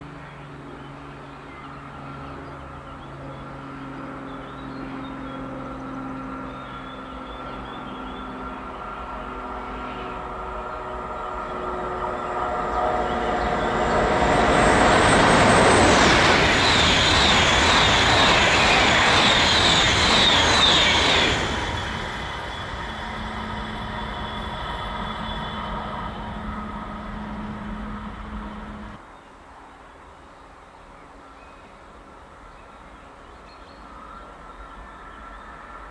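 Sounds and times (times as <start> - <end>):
electric train approaching: 1.0 - 29.0
whining tones: 6.6 - 29.0.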